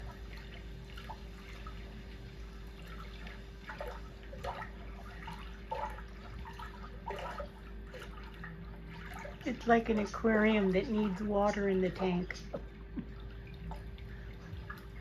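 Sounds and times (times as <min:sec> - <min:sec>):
bubbling dripping blips: 0:00.0 - 0:15.0
faint steady hum: 0:00.0 - 0:15.0
watery hush: 0:00.0 - 0:15.0.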